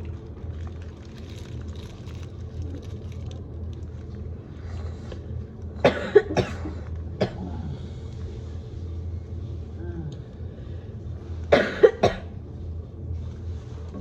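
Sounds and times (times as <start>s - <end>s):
steady low hum: 0.0s - 14.0s
person coughing: 5.8s - 7.7s, 11.5s - 12.4s.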